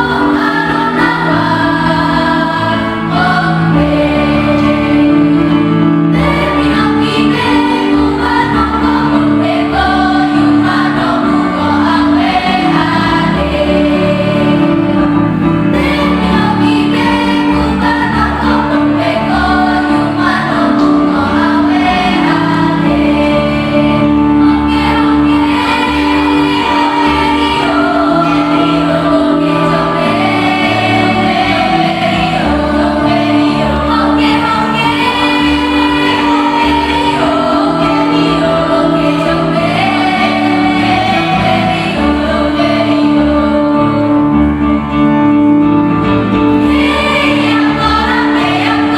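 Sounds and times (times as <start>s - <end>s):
choir singing: 0.0s - 48.9s.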